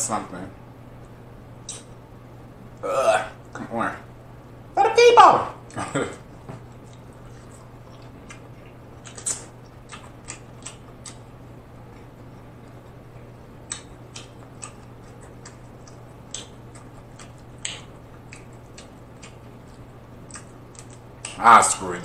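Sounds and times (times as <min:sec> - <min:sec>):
steady low hum: 0:00.0 - 0:22.0
chewing mouth sounds: 0:06.7 - 0:11.3, 0:13.6 - 0:21.4.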